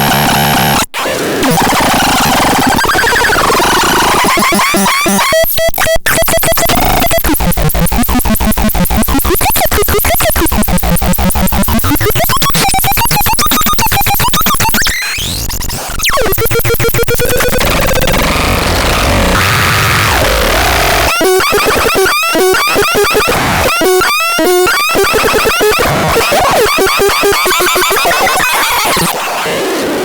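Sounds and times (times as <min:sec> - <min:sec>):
harsh pulsing synthesizer noise: 0:06.1 - 0:30.0.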